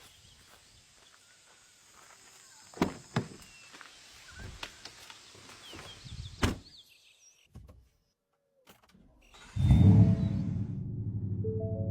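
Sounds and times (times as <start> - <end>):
faint outdoor background noise: 0.0 - 9.5
sharp thunks: 6.4 - 6.7.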